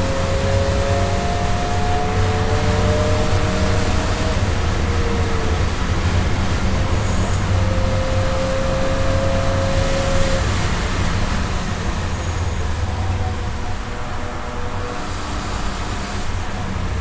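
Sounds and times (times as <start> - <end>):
car engine from inside cabin: 0.0 - 11.8
tyre and road noise: 0.0 - 17.0.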